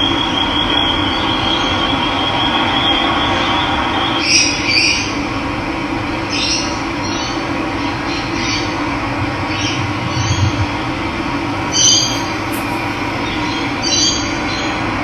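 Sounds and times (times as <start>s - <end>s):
running water rushing: 11.6s - 13.8s
birds chirping: 11.6s - 14.1s.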